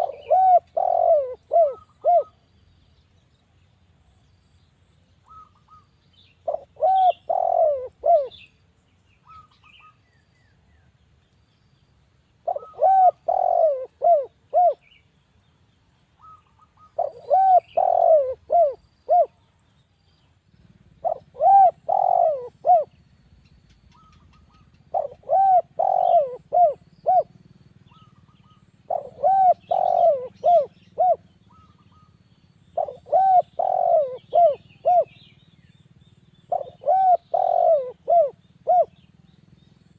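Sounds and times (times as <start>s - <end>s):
dove cooing: 0.0s - 2.4s, 5.2s - 8.5s, 12.4s - 15.0s, 16.2s - 19.4s, 20.9s - 23.0s, 23.9s - 32.2s, 32.8s - 35.4s, 36.5s - 39.1s
small birds chirping: 0.0s - 39.9s.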